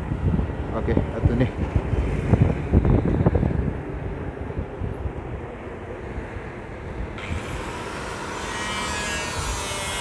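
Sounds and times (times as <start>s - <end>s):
high whine rising in pitch: 7.2s - 10.0s
steady high tones: 7.4s - 10.0s.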